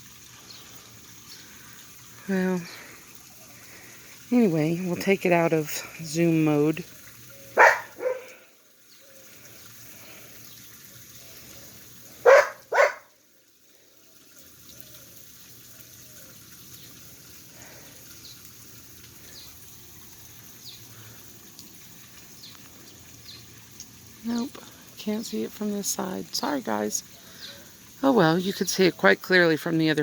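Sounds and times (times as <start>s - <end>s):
outdoor background noise: 0.0s - 30.0s
dog barking: 7.6s - 8.4s, 12.2s - 13.1s.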